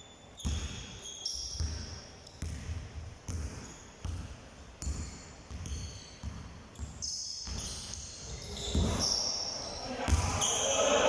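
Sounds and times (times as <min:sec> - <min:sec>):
ball bouncing on hard floor: 0:01.6 - 0:07.7.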